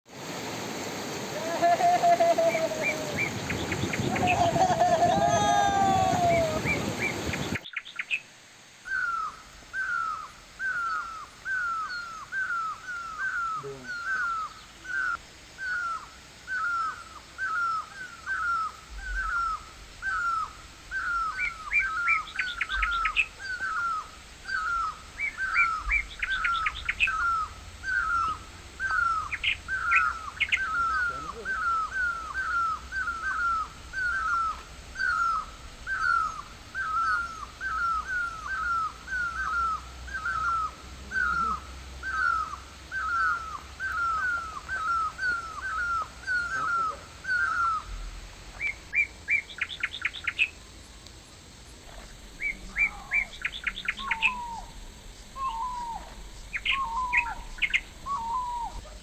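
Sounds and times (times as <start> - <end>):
bird whistling downward note: 55.4 - 58.9.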